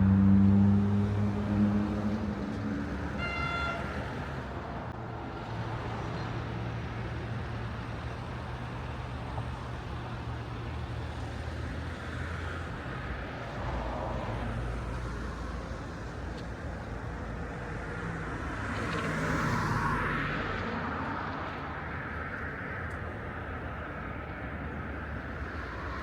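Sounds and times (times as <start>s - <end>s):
passing vehicle engines rumbling: 0.0s - 26.0s
car horn toot: 3.2s - 4.0s.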